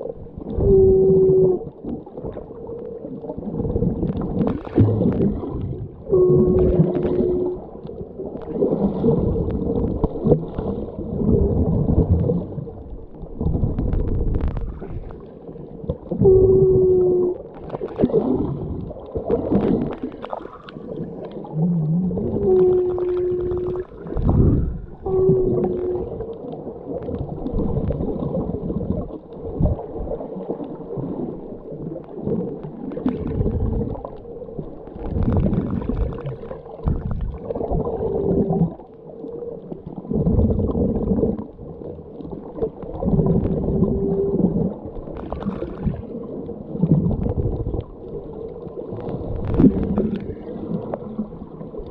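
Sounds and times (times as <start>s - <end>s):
underwater water sloshing and gurgling: 0.0s - 51.9s
short low hums: 0.5s - 1.7s, 4.8s - 7.8s, 16.2s - 17.4s, 21.6s - 26.3s.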